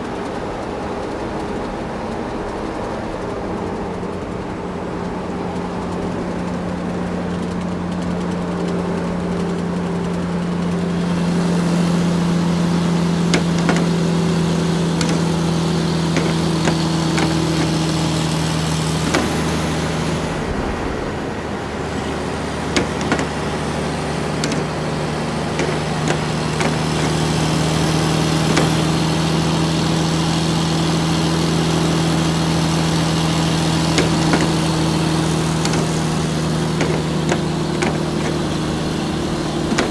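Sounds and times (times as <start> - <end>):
toy excavator motors humming: 5.6 - 21.0, 21.8 - 39.9
clicks: 13.3 - 29.4, 33.9 - 39.9.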